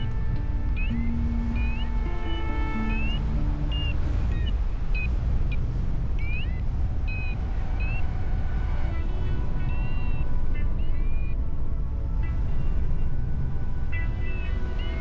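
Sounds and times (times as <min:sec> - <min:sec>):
high melodic background music: 0:00.0 - 0:05.6
wind rumble on microphone: 0:00.0 - 0:15.0.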